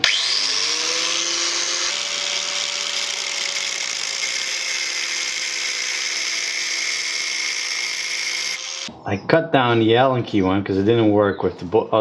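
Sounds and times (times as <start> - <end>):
power tool whining: 0.0 - 8.9.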